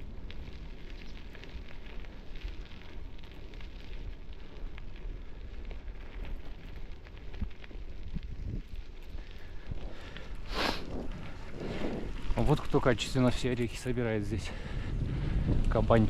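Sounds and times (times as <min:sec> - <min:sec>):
bicycle tyres on gravel: 0:00.0 - 0:16.0
wind on microphone: 0:07.3 - 0:09.0, 0:14.5 - 0:16.0.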